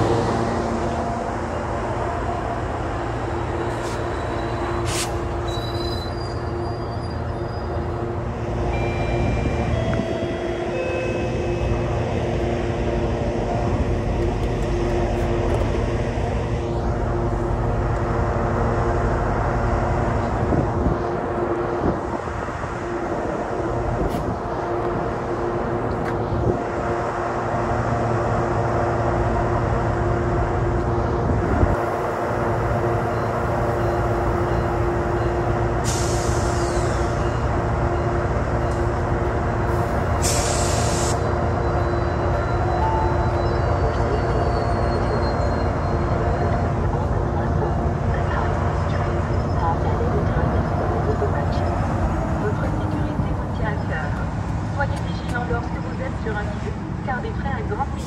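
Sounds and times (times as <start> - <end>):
train coaches rumbling: 0.0 - 58.0
short high squeals: 3.8 - 7.8.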